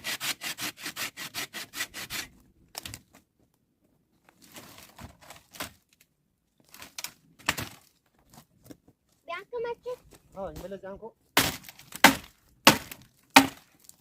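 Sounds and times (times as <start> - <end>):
hand saw sawing wood: 0.0 - 2.4
rustling: 2.7 - 10.8.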